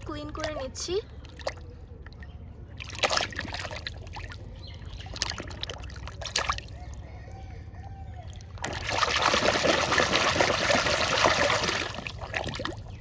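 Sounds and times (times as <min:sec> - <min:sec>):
water splashing over toy car: 0:08.6 - 0:12.8.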